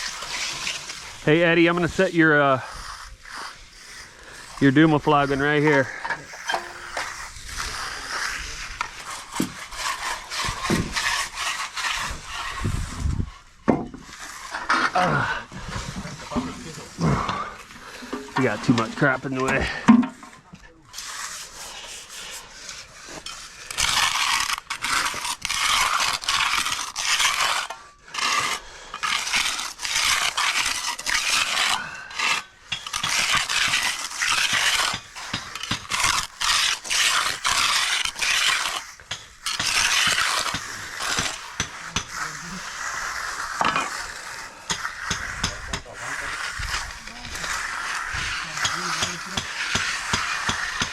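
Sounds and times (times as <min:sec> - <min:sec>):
tool scraping concrete: 0:00.0 - 0:50.9.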